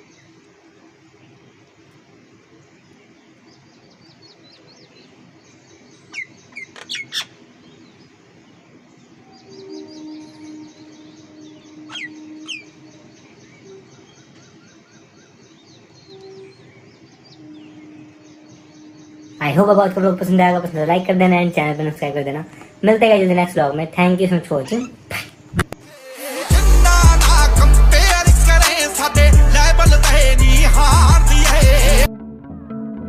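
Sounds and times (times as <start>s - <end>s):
small birds chirping: 0.0s - 25.6s
low steady hum: 0.0s - 25.8s
sharp downward-swept bird calls: 3.0s - 8.2s, 9.1s - 19.6s.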